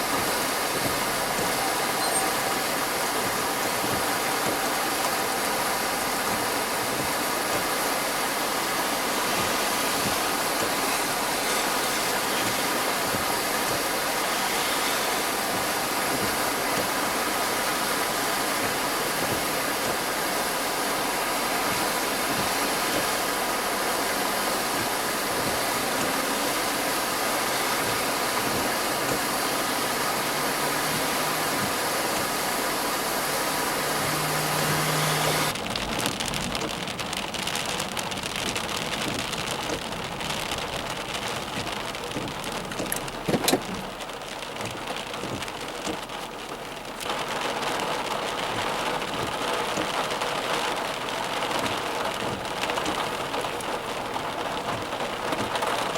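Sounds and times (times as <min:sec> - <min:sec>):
constant hiss: 0:00.0 - 0:55.9
car engine running: 0:27.6 - 0:35.6.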